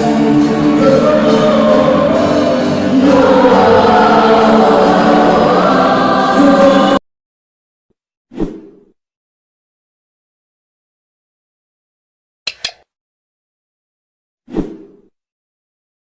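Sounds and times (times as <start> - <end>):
choir singing with accompaniment: 0.0 - 7.0.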